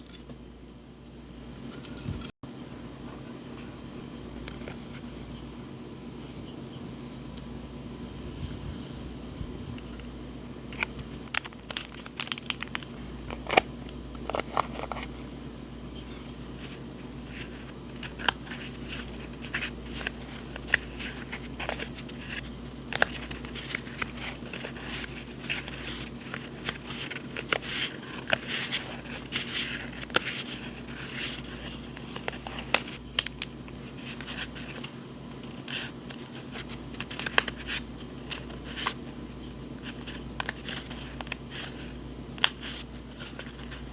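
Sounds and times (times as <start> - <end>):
faint steady hum: 0.0 - 43.9
paper crinkling and rustling: 10.7 - 15.4, 16.3 - 39.1, 39.8 - 43.9.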